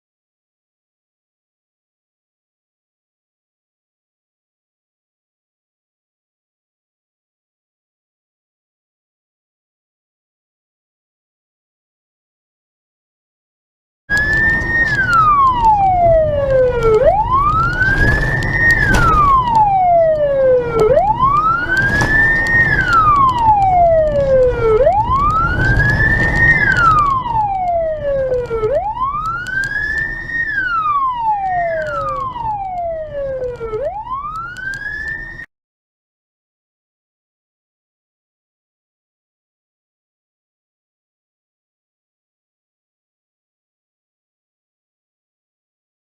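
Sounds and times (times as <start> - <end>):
emergency siren wailing: 14.1 - 35.5
traffic rumble: 14.1 - 35.5.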